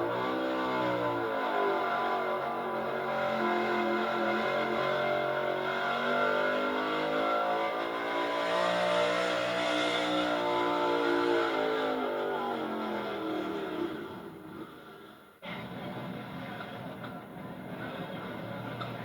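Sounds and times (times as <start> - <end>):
truck engine revving high: 0.0 - 14.6.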